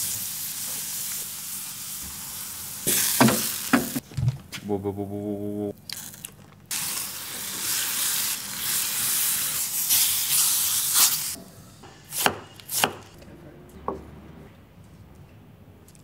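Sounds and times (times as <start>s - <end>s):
chicken sizzling in frying pan: 0.0s - 4.0s, 6.7s - 11.4s.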